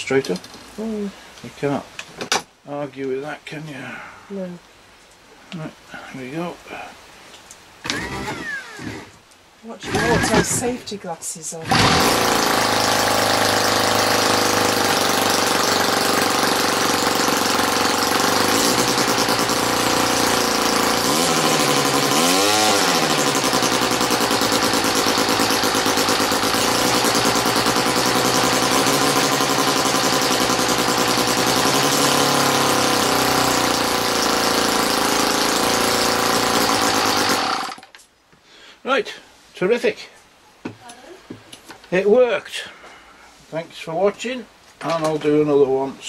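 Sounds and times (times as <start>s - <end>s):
model aero engine running: 11.6s - 37.8s.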